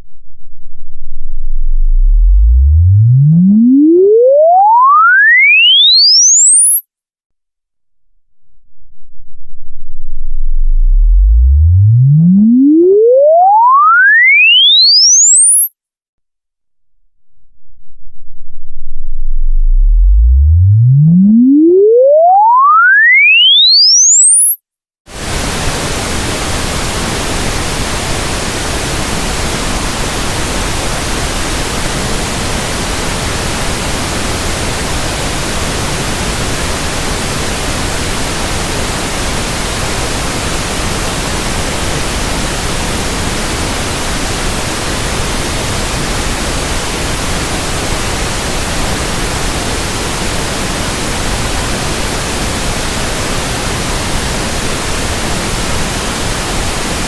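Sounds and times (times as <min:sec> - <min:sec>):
steady pink noise hiss: 0:25.1 - 0:57.0.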